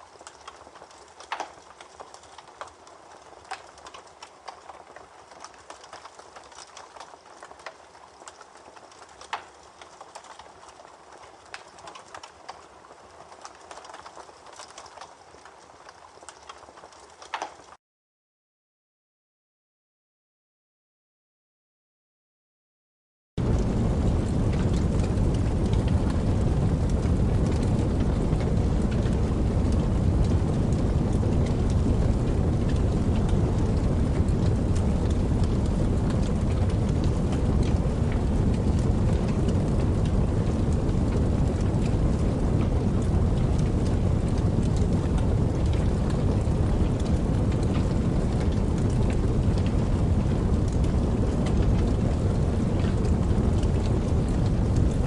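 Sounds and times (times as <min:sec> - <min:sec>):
raindrop ticks: 0:00.0 - 0:17.8, 0:23.4 - 0:55.0
steady rainfall: 0:00.0 - 0:17.8, 0:23.4 - 0:55.0
low rumble: 0:23.4 - 0:55.0.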